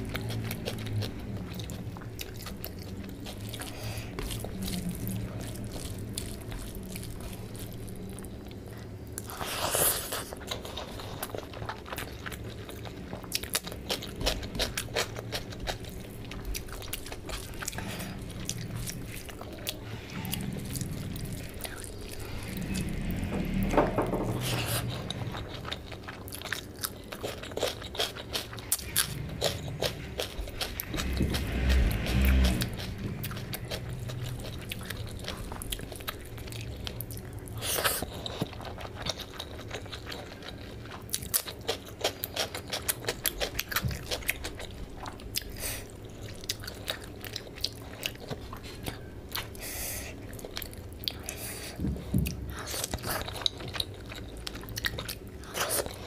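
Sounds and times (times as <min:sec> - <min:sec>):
wet chewing and lip-smacking: 0:24.5 - 0:56.0.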